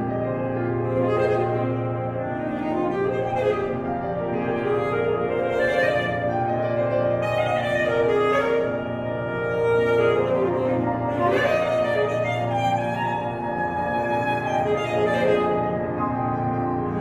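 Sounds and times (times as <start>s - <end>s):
alto saxophone melody: 0.0s - 17.0s
piano accompaniment: 0.0s - 17.0s.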